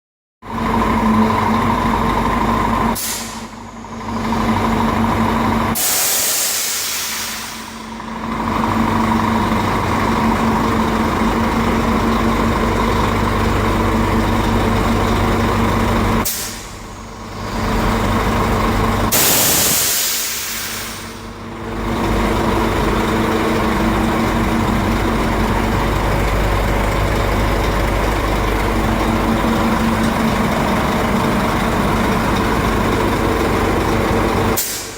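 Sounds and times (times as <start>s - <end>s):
truck engine idling: 0.5s - 5.8s, 6.4s - 34.9s
compressed air hissing: 5.8s - 7.7s, 19.1s - 21.2s, 34.6s - 34.9s.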